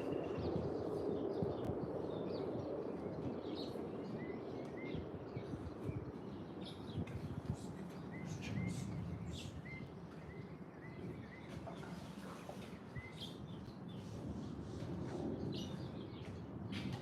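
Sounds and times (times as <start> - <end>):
birds chirping: 0.0 - 14.4.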